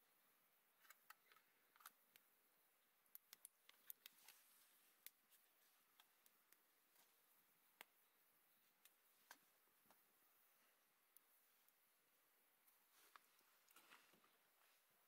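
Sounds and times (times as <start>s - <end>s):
faint sharp clicks: 3.1s - 4.4s.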